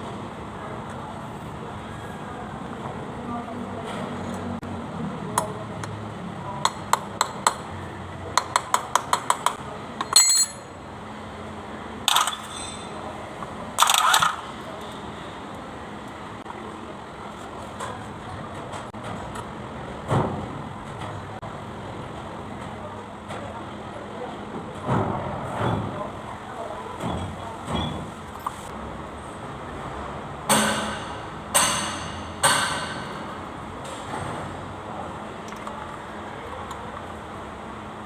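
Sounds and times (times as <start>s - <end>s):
metal tools clinking: 10.0s - 10.8s, 12.1s - 13.0s.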